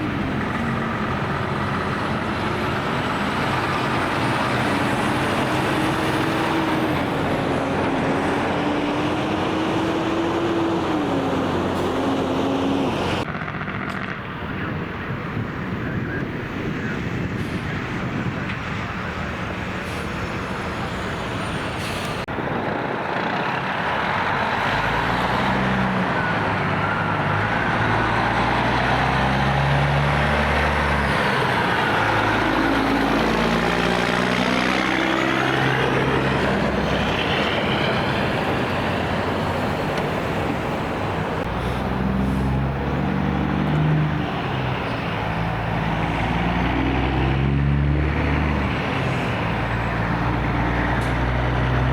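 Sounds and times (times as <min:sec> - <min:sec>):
truck engines running: 0:00.0 - 0:51.9
tyre and road noise: 0:00.0 - 0:51.9.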